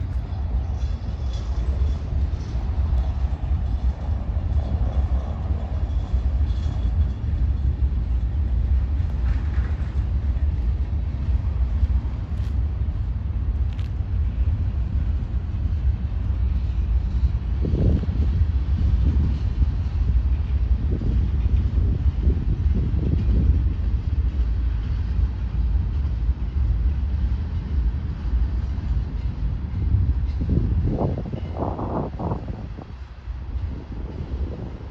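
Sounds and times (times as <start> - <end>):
freight train wheels rumbling on rail: 0.0 - 34.9.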